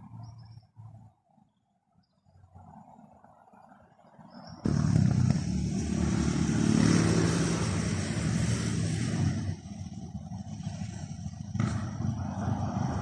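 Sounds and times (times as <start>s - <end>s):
vehicle engine running: 4.7s - 13.0s.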